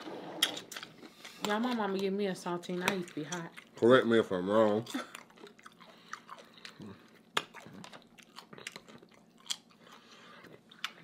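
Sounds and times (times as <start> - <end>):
wet chewing mouth sounds: 2.8 - 3.8, 4.8 - 11.0.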